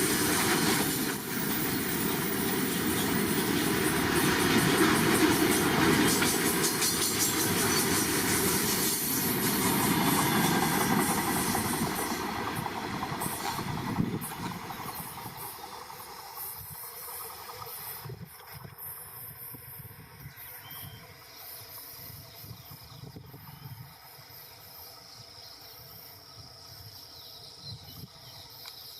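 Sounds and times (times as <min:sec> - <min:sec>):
train wheels clattering over rail joints: 0:00.0 - 0:16.6
insects chirping: 0:00.0 - 0:28.9.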